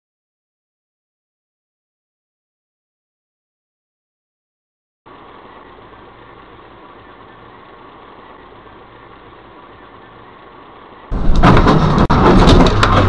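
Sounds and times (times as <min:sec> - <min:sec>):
faint car engine and road hum: 0:05.1 - 0:11.3
rough rumbling with sharp knocks: 0:11.1 - 0:13.0.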